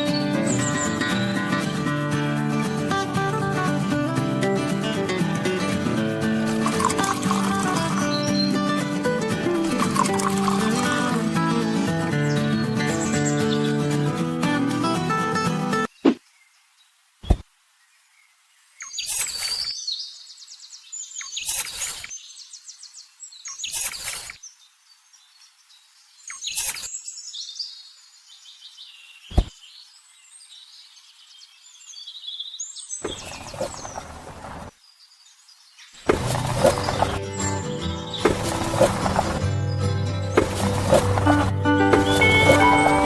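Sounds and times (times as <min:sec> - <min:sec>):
birds chirping and twittering: 0:00.0 - 0:14.2, 0:15.4 - 0:43.0
music: 0:00.0 - 0:15.9, 0:36.2 - 0:43.0.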